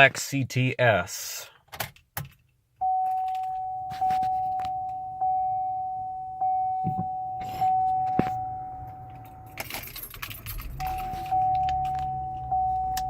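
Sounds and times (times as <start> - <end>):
car warning chime: 2.8 - 13.0
keys jangling: 9.0 - 12.1.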